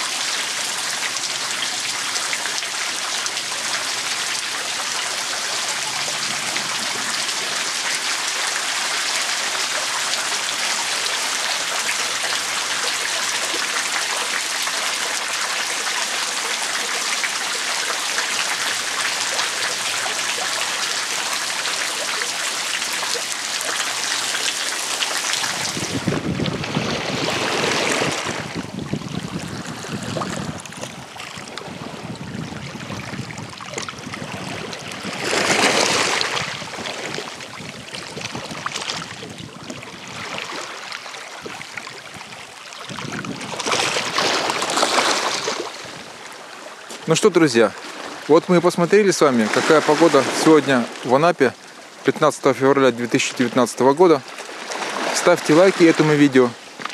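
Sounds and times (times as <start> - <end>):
sea surf: 0.0 - 56.9
wind on microphone: 5.4 - 8.1, 25.4 - 40.6, 41.4 - 46.2.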